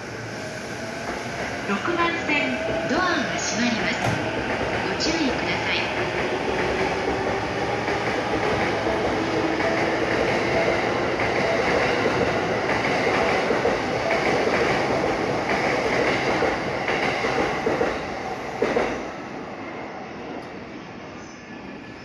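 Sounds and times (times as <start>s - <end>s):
train rumbling on rails: 0.0s - 22.0s.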